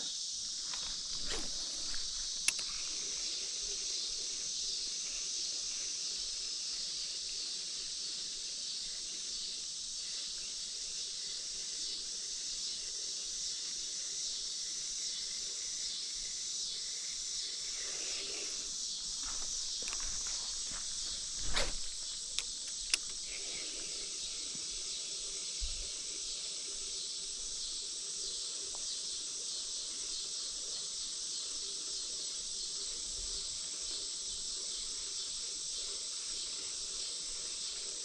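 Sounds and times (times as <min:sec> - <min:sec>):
crickets chirping: 0:00.0 - 0:38.0
sharp click: 0:00.7 - 0:02.8, 0:21.4 - 0:23.3.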